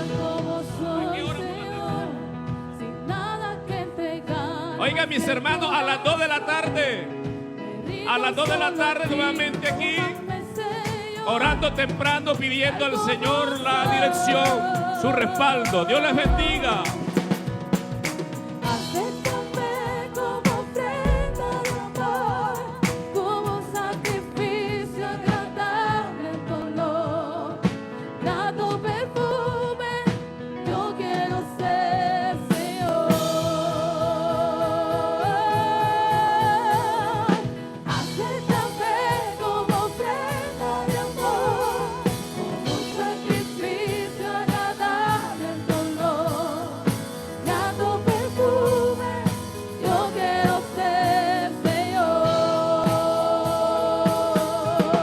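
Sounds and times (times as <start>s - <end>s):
person singing with vibrato: 0.0s - 27.6s, 30.7s - 55.0s
instrumental accompaniment with beat: 6.1s - 25.6s, 32.5s - 55.0s.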